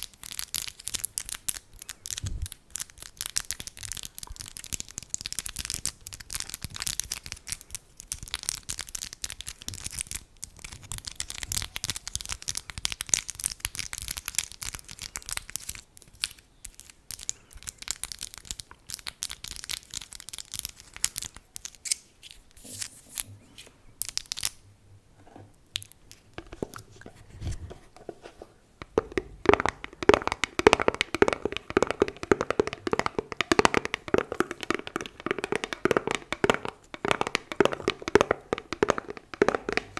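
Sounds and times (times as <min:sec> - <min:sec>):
fingers tapping and scratching: 0:25.8 - 0:39.9.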